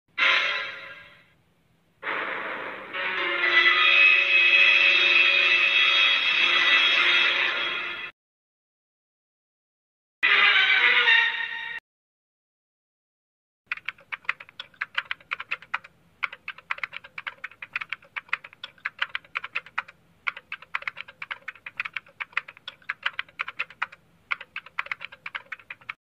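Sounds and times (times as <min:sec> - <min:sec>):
keyboard typing: 0:13.7 - 0:26.0.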